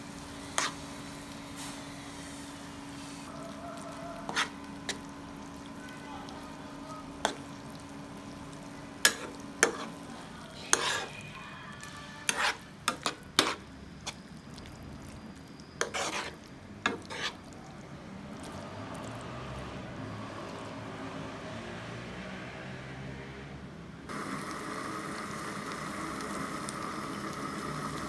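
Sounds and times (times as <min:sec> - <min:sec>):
food sizzling in a pan: 0:00.0 - 0:17.8, 0:24.1 - 0:28.0.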